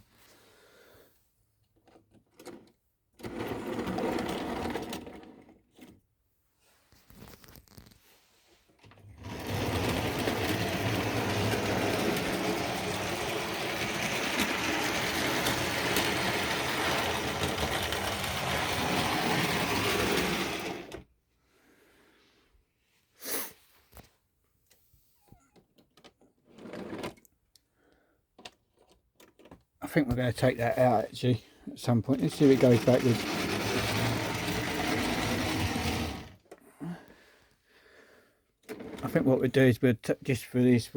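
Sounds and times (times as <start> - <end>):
wheels rattling over rail joints: 9.1 - 21.0, 32.0 - 36.4
model train motor whirring: 9.2 - 21.0, 32.1 - 36.4.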